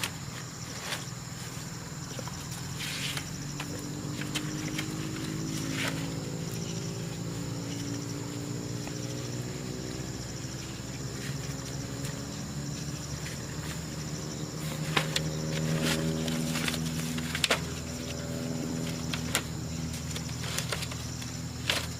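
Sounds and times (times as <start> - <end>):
insects chirping trill: 0.0 - 21.9
steady low hum: 0.0 - 21.9.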